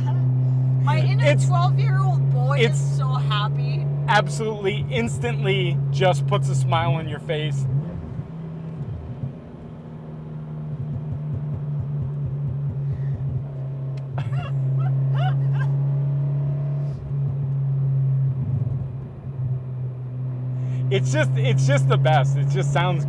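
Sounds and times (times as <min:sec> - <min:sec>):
car engine running: 0:00.0 - 0:23.0
exhaust crackles and pops: 0:04.1 - 0:15.8.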